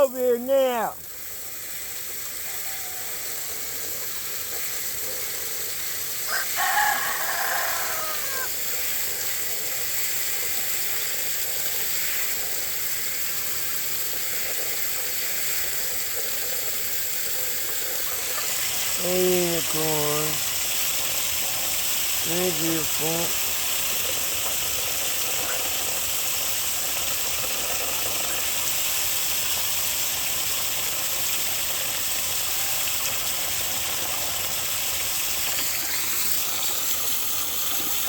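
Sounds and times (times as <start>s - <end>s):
steady background hiss: 0.0s - 38.0s
rooster crowing: 2.4s - 3.6s, 6.3s - 8.6s.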